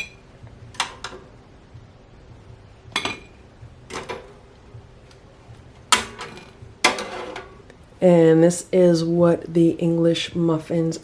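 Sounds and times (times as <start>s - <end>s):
utensils clinking against dishware: 3.0s - 3.4s.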